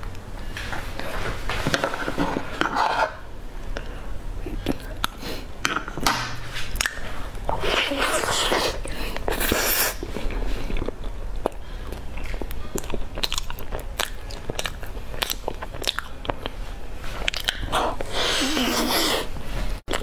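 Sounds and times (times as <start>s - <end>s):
chewing mouth clicks: 9.2s - 16.6s, 17.2s - 18.9s.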